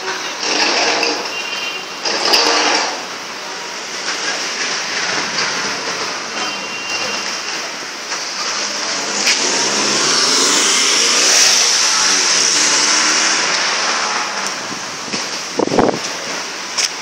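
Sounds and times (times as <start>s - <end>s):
tyres hissing on wet road: 0.0s - 17.0s
car engine passing: 8.3s - 15.6s.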